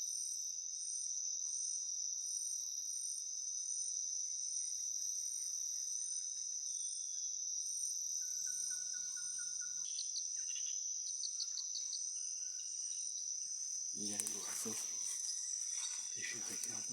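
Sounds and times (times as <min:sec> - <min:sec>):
insect chorus drone: 0:00.0 - 0:16.9
birds calling: 0:14.0 - 0:16.9.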